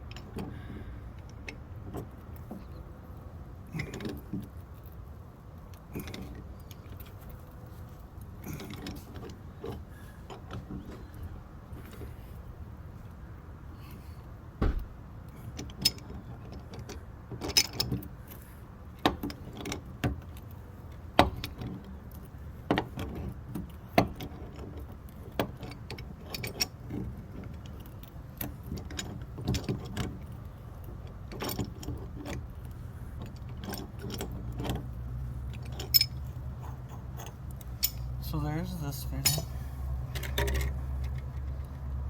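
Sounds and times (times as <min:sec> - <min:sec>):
low steady rumble: 0:00.0 - 0:42.0
metal tools clinking and knocking: 0:35.5 - 0:41.7.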